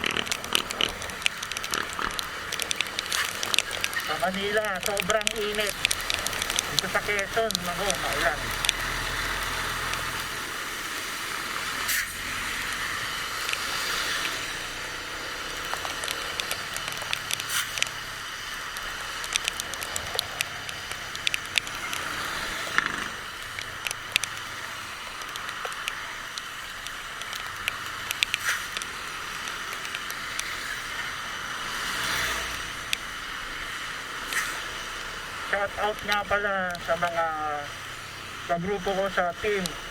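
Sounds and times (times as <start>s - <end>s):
motorcycle wind and road noise: 0.0s - 36.6s
raindrops ticking on microphone: 0.0s - 39.9s.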